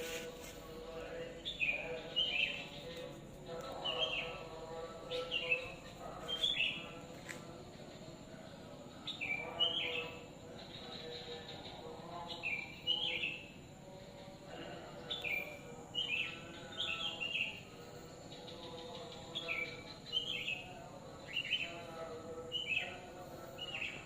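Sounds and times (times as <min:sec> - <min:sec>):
faint background hum: 0:00.0 - 0:24.0
small birds chirping: 0:00.0 - 0:24.0.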